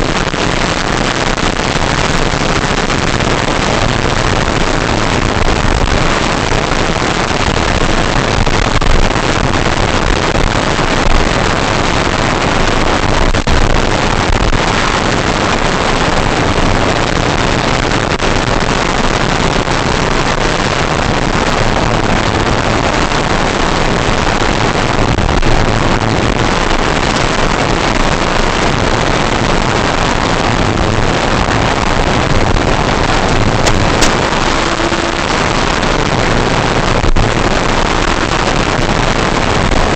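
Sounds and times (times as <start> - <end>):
model airplane propeller noise: 0.0 - 39.9
rush of airflow: 20.9 - 38.9.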